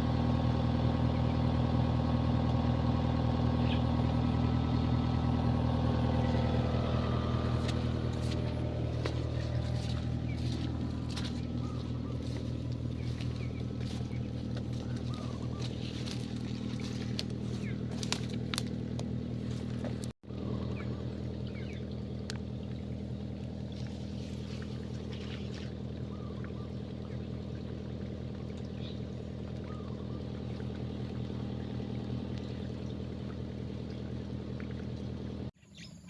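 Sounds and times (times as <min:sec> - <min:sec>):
excavator diesel engine running: 0:00.0 - 0:35.6.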